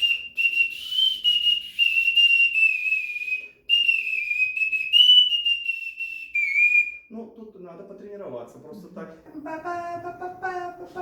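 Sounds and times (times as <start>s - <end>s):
clay whistle tune: 0.0s - 7.1s.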